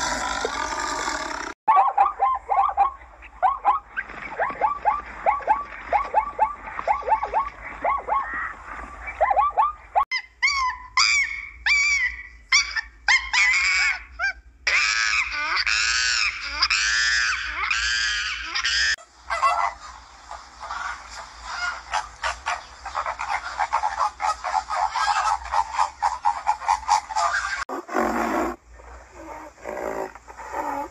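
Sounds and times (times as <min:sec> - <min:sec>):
flamingos honking and chattering: 0:02.4 - 0:10.0, 0:14.8 - 0:27.7
monkey wavering cries: 0:09.2 - 0:19.8.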